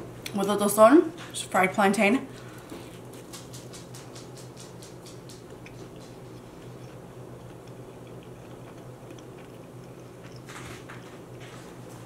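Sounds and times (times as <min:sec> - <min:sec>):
low steady hum: 0:00.0 - 0:12.0
crunchy chewing: 0:02.4 - 0:12.0.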